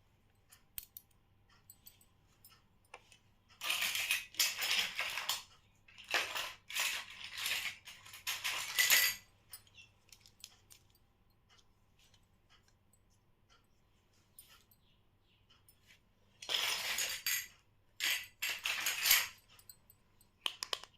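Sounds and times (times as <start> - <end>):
small plastic parts clicking: 0.5 - 1.2, 20.4 - 20.9
plastic toys rustling and scraping: 2.9 - 10.9, 16.4 - 19.4.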